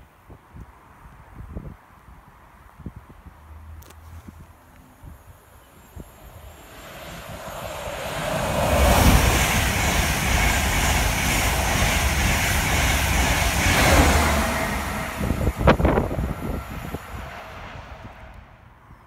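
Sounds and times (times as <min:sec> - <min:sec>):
train passing at speed: 0:04.9 - 0:18.9
rush of wheels on rail: 0:05.8 - 0:18.5.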